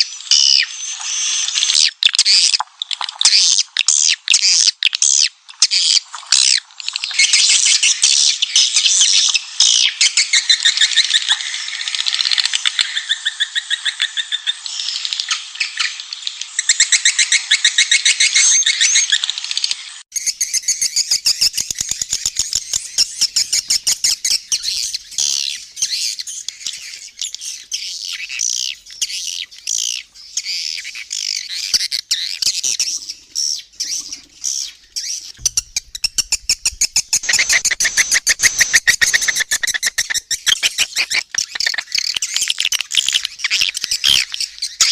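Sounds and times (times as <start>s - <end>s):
swiftlets chirping and twittering: 20.1s - 44.9s.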